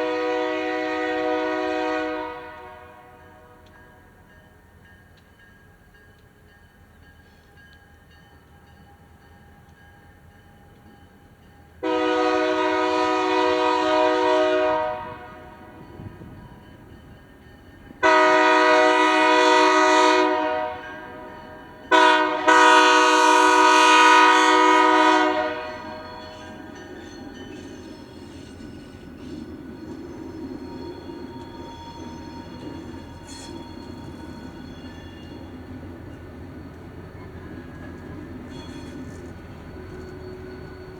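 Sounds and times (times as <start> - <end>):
locomotive air horn blasts: 0.0 - 3.6, 11.8 - 15.8, 18.0 - 26.7
train low rumble: 0.0 - 40.9
rail clicks: 2.5 - 11.8, 20.8 - 40.9.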